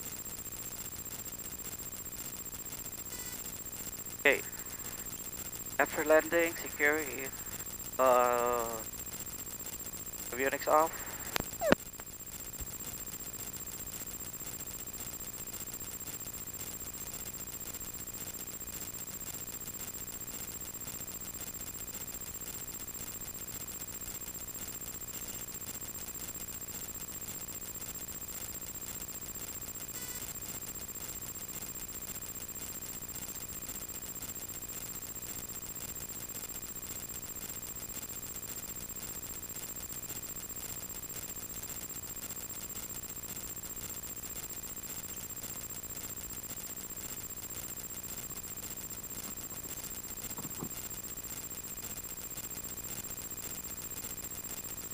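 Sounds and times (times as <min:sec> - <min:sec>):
high-pitched whine: 0:02.7 - 0:12.9.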